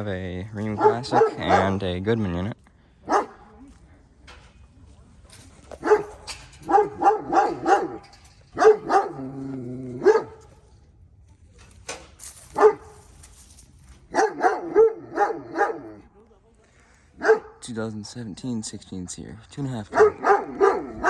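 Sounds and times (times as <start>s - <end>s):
dog barking: 0.6s - 1.9s, 3.0s - 3.5s, 5.8s - 10.5s, 12.5s - 13.0s, 14.1s - 16.1s, 17.2s - 17.6s, 19.9s - 21.0s.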